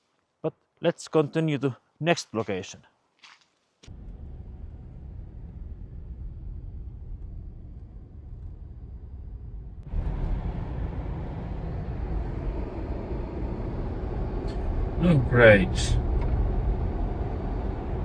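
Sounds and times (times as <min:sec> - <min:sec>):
car engine and road rumble: 0:03.9 - 0:18.0.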